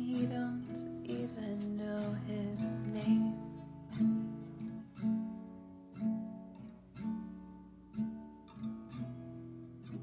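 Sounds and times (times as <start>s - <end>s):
acoustic guitar strumming chords: 0.0s - 10.0s.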